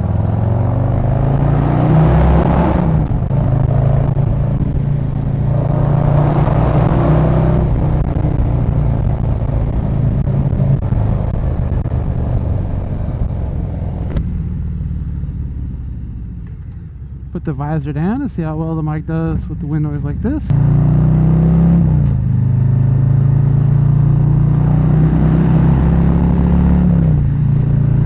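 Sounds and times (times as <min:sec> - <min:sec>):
wind rushing over microphone: 0:00.0 - 0:14.4
motorcycle engine running: 0:00.0 - 0:18.8.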